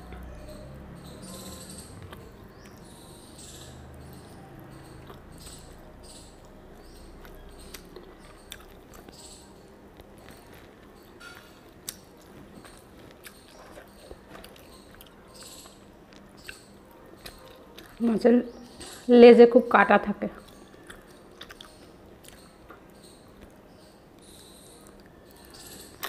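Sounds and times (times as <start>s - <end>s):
person chewing: 4.9s - 5.3s, 7.2s - 9.2s, 9.8s - 18.0s, 20.5s - 23.5s.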